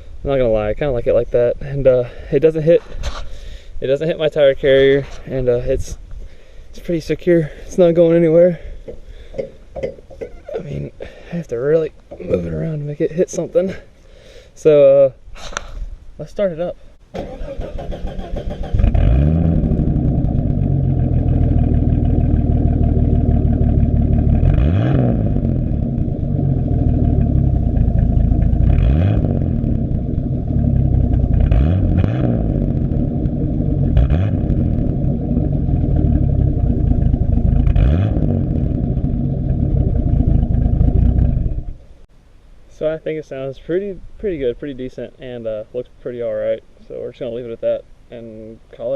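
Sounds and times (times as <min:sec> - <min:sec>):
engine running through exhaust: 0:18.4 - 0:41.9.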